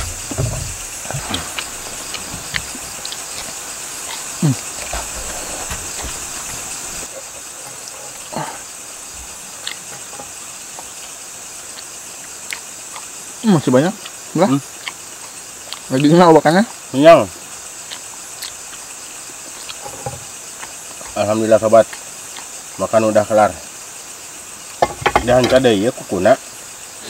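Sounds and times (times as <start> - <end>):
crickets chirring: 0.0 - 27.0.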